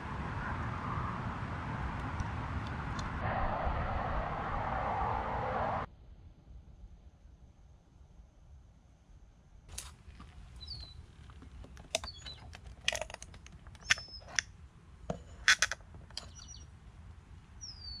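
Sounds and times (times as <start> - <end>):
small birds chirping: 9.8 - 14.6, 16.0 - 18.0
sharp clicks: 10.7 - 14.5.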